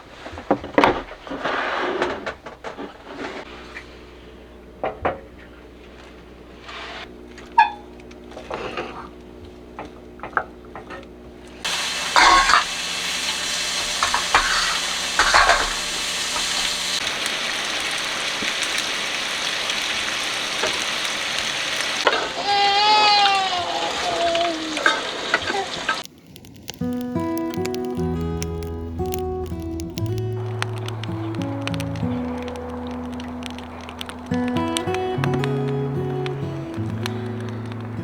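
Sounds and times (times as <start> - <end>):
food sizzling in a pan: 11.6 - 38.0.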